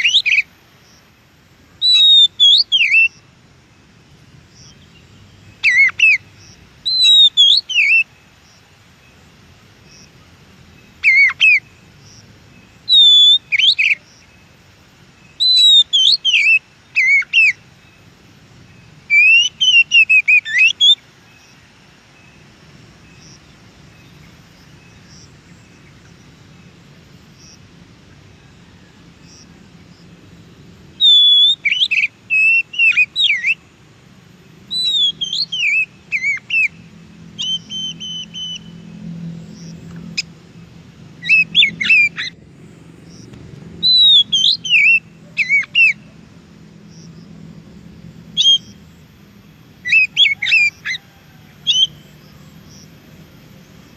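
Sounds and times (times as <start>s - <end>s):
bird singing whistled phrases: 0.0s - 0.5s, 1.8s - 3.2s, 5.6s - 6.2s, 6.8s - 8.1s, 11.0s - 11.6s, 12.8s - 14.0s, 15.3s - 17.6s, 19.1s - 21.0s, 31.0s - 33.6s, 34.7s - 38.8s, 41.2s - 42.4s, 43.8s - 46.1s, 48.4s - 48.8s, 49.8s - 51.0s, 51.6s - 52.0s.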